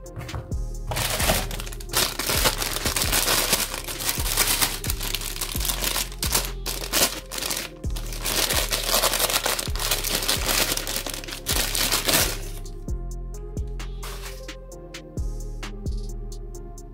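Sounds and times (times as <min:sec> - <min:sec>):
background music with low beat: 0:00.0 - 0:16.9
tissue paper crinkling: 0:00.9 - 0:12.6.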